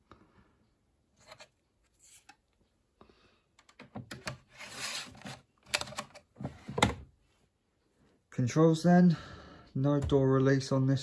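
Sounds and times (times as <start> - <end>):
plastic rasping slide: 4.4 - 5.5.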